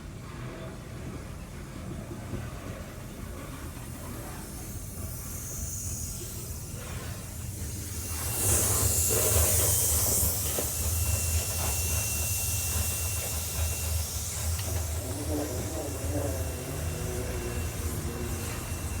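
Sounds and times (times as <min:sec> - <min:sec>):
freight train rumble: 0:00.0 - 0:19.0
loud hiss: 0:04.8 - 0:19.0.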